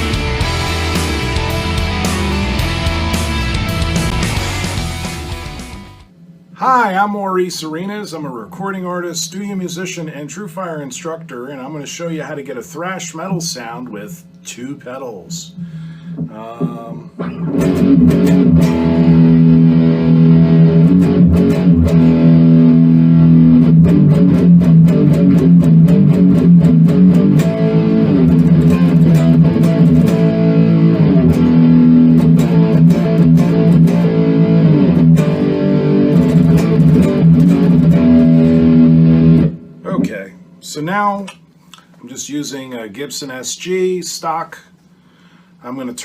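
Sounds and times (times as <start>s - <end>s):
distorted electric guitar riffs: 0.0s - 6.8s, 15.4s - 40.6s.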